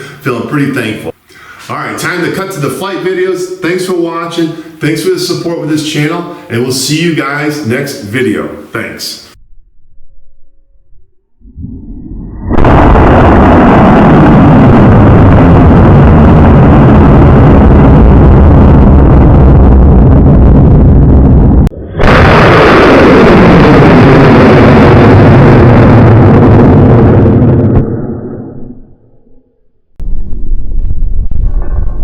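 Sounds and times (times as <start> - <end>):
rocket motor roaring: 11.4 - 29.4.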